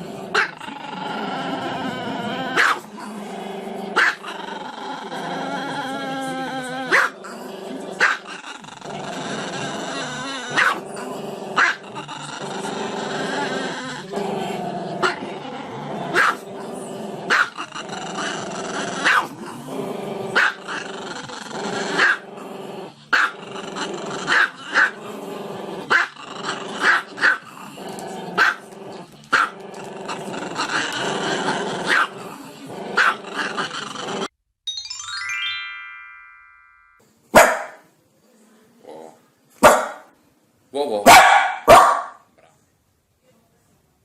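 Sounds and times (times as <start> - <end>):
dog growling: 0.0 - 34.3
dog barking sharply: 37.4 - 37.8, 39.6 - 40.1, 41.1 - 42.2.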